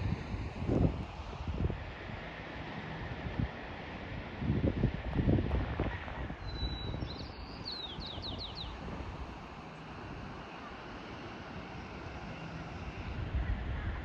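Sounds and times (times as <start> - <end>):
surf hiss: 0.0 - 14.0
wind buffeting microphone: 0.0 - 14.0
small bird chirping: 6.4 - 8.8.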